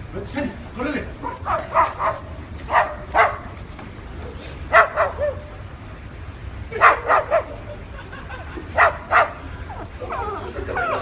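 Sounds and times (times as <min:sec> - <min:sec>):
dog barking: 0:01.2 - 0:03.5, 0:04.7 - 0:05.5, 0:06.8 - 0:07.6, 0:08.8 - 0:09.4.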